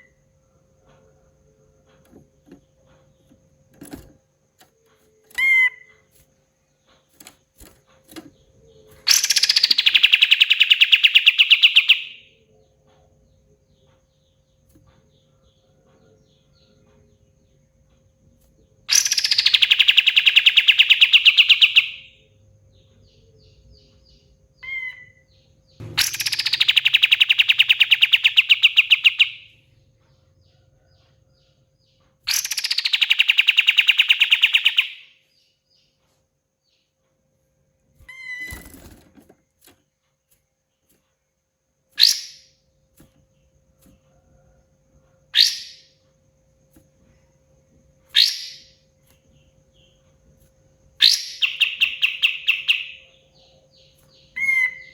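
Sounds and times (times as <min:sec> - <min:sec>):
bird singing rattling phrases: 0:00.0 - 0:36.0, 0:36.6 - 0:43.8, 0:45.2 - 0:45.9, 0:46.5 - 0:54.9
short sharp bird calls: 0:25.8 - 0:29.5.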